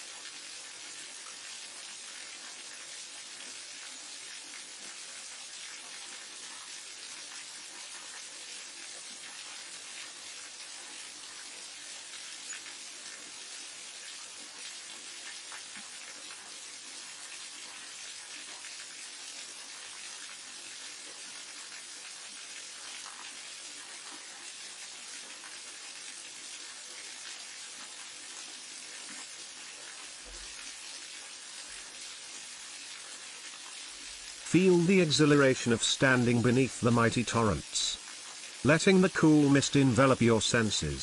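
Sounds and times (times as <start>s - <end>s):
waterfall rushing water: 34.5s - 38.0s, 38.6s - 41.0s.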